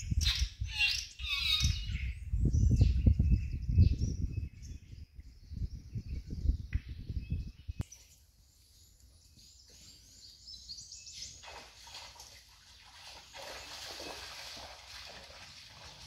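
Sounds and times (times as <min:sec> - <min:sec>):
birds chirping and calling: 0:00.0 - 0:12.4.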